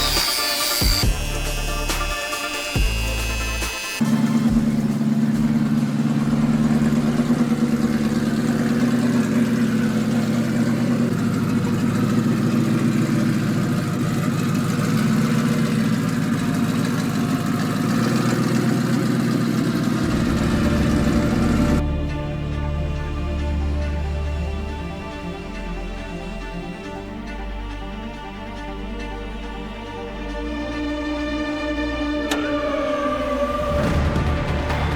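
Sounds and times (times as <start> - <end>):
pickup engine idling: 0.0 - 34.9.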